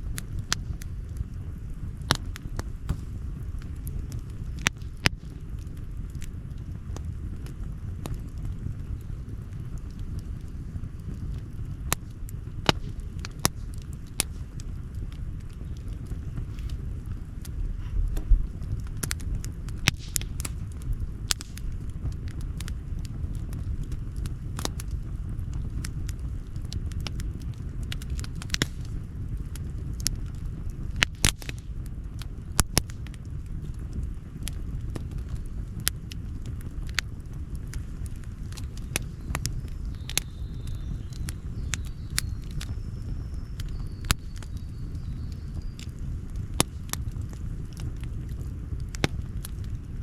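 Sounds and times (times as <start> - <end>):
low rumble: 0.0 - 31.0
campfire crackling and popping: 0.0 - 50.0.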